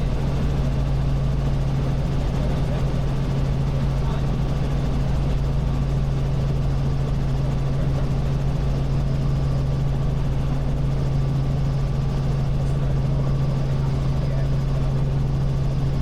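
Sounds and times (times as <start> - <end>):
helicopter engine and rotor drone: 0.0 - 16.0.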